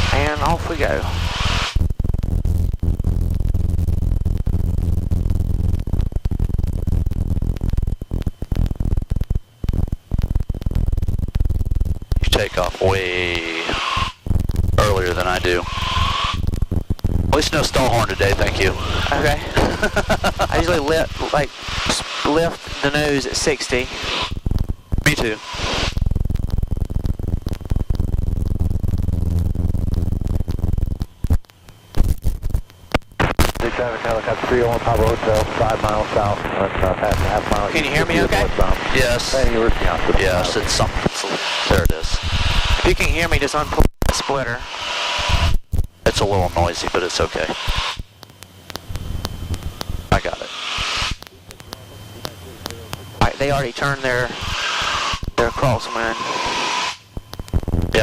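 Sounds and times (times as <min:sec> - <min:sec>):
aircraft engine hum: 0:00.0 - 0:31.9, 0:46.0 - 0:57.6
small plane cockpit rumble: 0:00.0 - 0:44.7, 0:45.3 - 0:58.0
intercom static hiss: 0:00.0 - 0:58.0.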